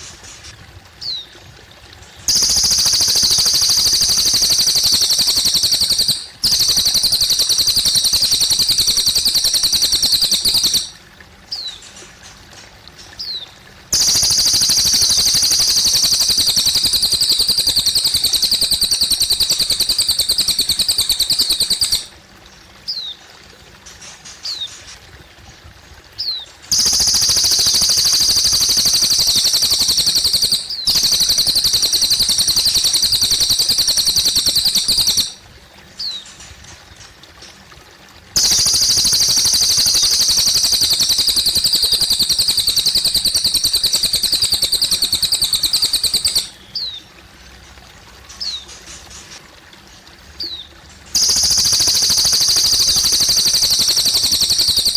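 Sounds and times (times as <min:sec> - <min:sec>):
trickling water: 0:00.0 - 0:54.9.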